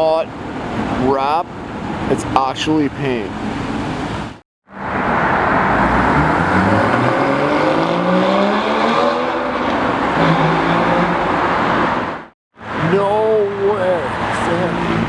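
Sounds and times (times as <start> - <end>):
sports car engine accelerating: 4.7 - 12.3.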